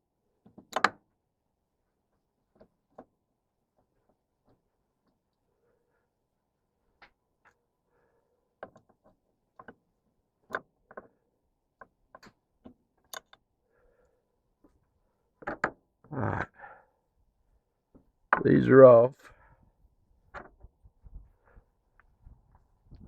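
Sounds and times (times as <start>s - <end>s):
hands and tools clicking and knocking: 0.5s - 1.0s, 8.6s - 11.2s, 11.8s - 13.5s, 15.4s - 15.8s.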